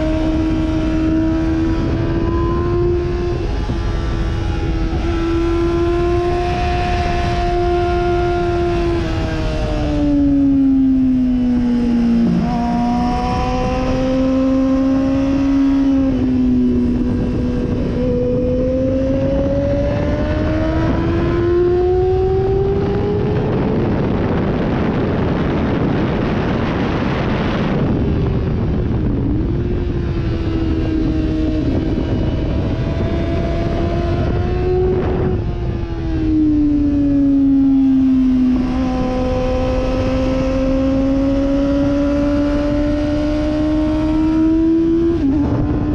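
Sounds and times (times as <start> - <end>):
sportbike engine revving: 0.0 - 45.9.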